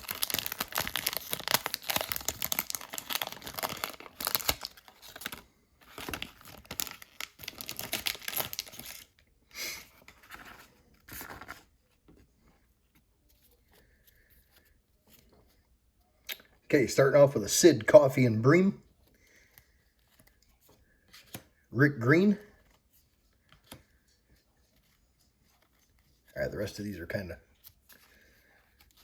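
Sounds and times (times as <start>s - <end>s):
wrapper tearing and crinkling: 0.0s - 9.2s.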